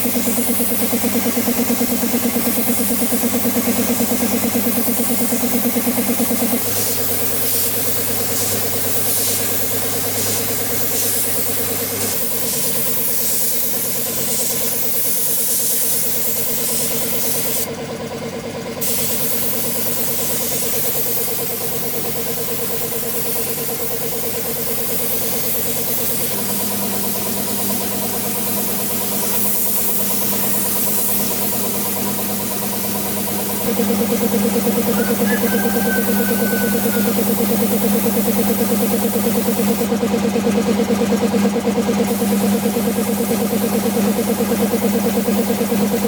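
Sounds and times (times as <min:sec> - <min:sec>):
motor running steadily: 0:00.0 - 0:46.0.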